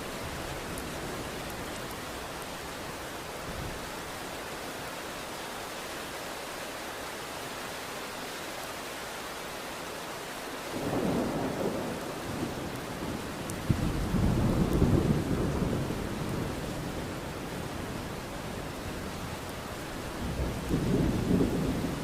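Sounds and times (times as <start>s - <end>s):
steady rain falling: 0.0s - 22.0s
low rumble of thunder: 10.8s - 19.1s, 20.2s - 22.0s.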